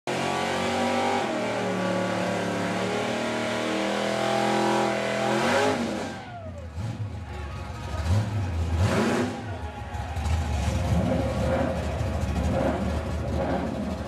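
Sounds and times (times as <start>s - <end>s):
car engine revving hard: 0.1s - 6.2s, 8.0s - 9.5s, 10.6s - 14.0s.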